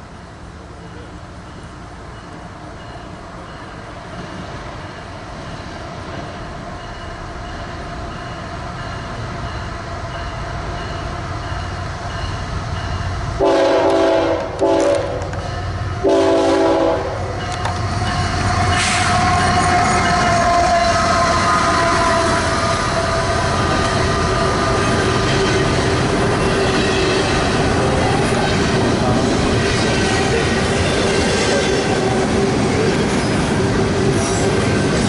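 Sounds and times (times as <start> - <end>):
diesel locomotive rumbling: 0.0 - 35.0
locomotive air horn blasts: 13.4 - 15.3, 16.0 - 17.3, 18.8 - 25.0.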